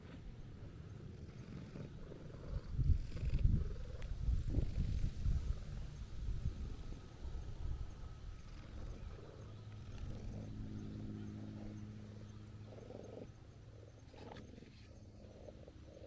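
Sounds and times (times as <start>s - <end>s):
cat purring: 0.0s - 5.2s.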